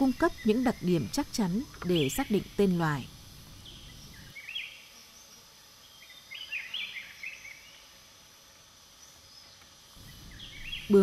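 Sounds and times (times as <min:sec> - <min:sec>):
bird chirps: 0:10.0 - 0:11.0.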